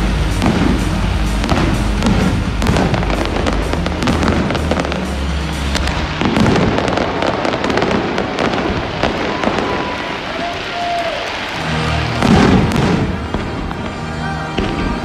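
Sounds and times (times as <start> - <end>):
music with bass: 0.0 - 8.6, 11.6 - 15.0
fireworks bursting and crackling: 0.0 - 15.0.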